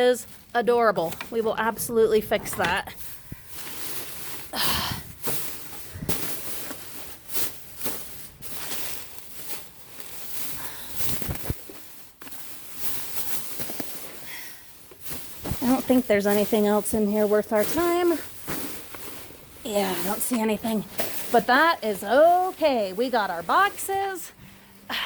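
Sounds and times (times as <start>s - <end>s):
rummaging through trash and boxes: 0.0s - 25.0s.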